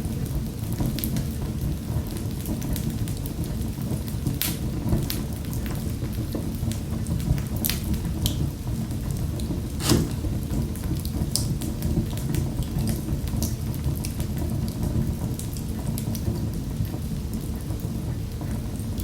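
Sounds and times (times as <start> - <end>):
wood fire crackling: 9.7 - 10.4.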